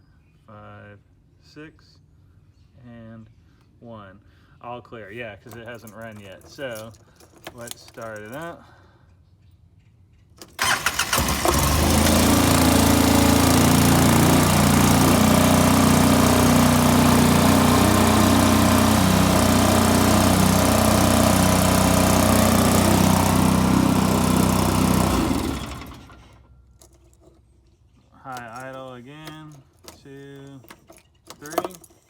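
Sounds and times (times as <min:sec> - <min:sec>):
engine cranking on starter: 0:10.4 - 0:26.6
engine idling: 0:10.6 - 0:26.4.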